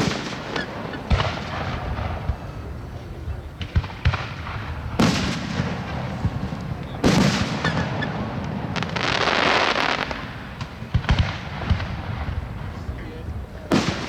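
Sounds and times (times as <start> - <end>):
rumbling echo: 0.0 - 9.0
fireworks booming: 0.0 - 14.0.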